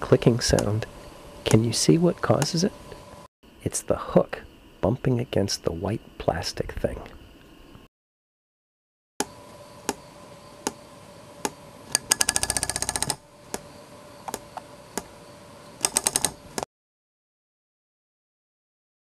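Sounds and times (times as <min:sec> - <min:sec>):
model propeller clicking: 0:11.9 - 0:13.2.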